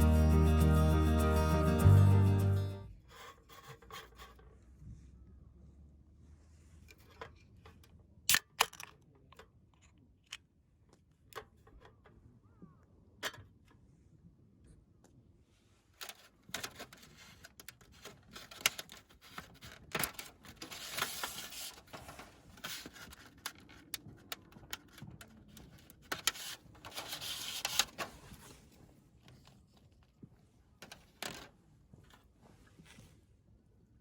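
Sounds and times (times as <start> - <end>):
rustling and scraping: 2.9 - 5.0, 15.6 - 30.0, 30.8 - 33.3.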